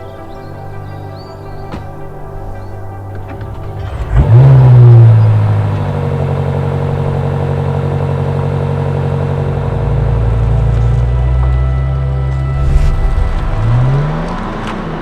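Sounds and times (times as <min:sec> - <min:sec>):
car engine starting and idling: 0:03.0 - 0:15.0.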